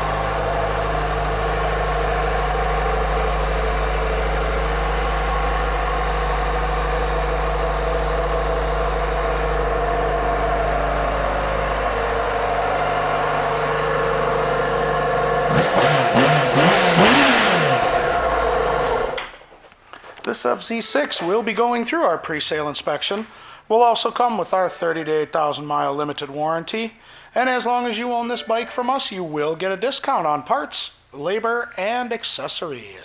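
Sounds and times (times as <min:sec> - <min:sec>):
motorcycle engine idling: 0:00.0 - 0:19.2
engine throttle blips: 0:00.0 - 0:19.3.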